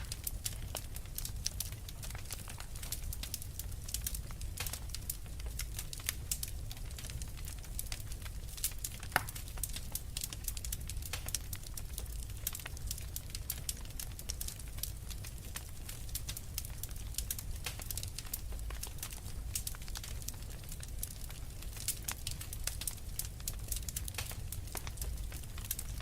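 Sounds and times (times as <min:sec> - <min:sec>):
flames rumbling: 0:00.0 - 0:26.0
logs crackling and popping: 0:00.0 - 0:26.0.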